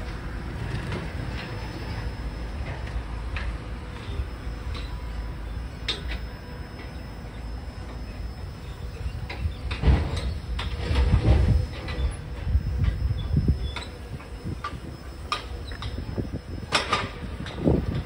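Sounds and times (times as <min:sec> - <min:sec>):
low rumble of train: 0:00.0 - 0:18.0
sharp metallic clicks and squeaks: 0:05.7 - 0:18.0.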